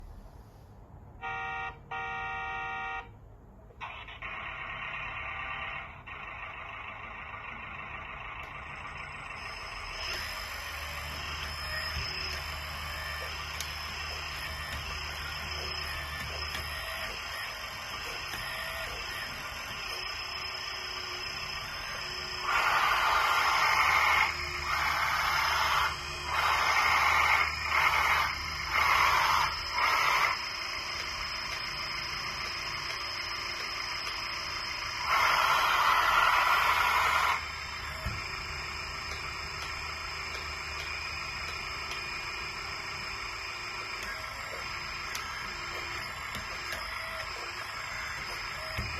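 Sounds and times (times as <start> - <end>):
hydraulic pump whine: 1.2 - 3.1, 3.7 - 48.9.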